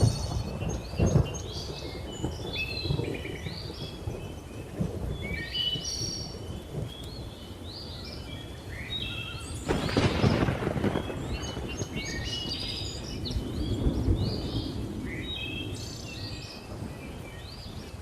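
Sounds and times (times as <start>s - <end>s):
sharp thunder burst: 0.0s - 4.2s, 9.6s - 15.7s
rumble of thunder: 0.0s - 7.8s, 9.6s - 18.0s
birds chirping and whistling: 0.0s - 18.0s
rain: 0.0s - 18.0s.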